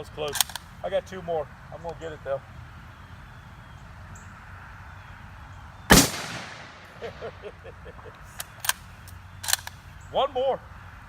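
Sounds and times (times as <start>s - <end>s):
sharp clicks: 0.3s - 0.7s, 8.1s - 9.8s
rifle shot with echo: 5.9s - 7.5s.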